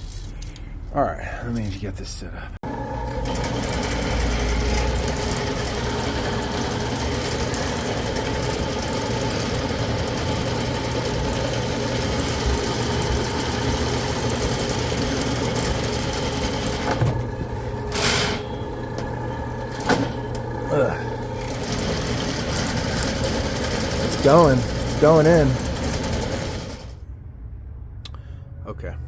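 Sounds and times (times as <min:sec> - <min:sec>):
drain cleaning machine running: 0:02.6 - 0:27.0.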